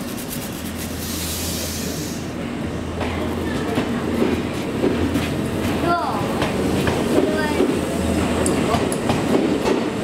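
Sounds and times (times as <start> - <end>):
electric train rolling slowly: 0.8 - 10.0
burst of hiss: 0.9 - 2.3.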